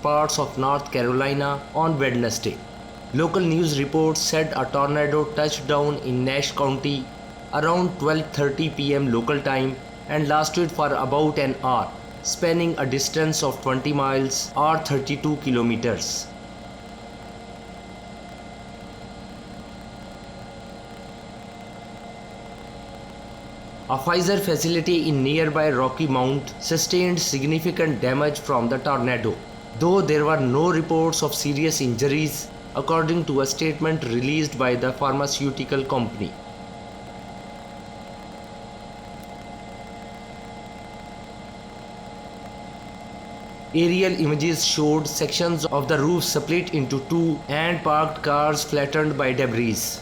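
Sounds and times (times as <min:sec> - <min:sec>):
faint hum: 0:00.0 - 0:50.0
steady hiss: 0:00.0 - 0:50.0.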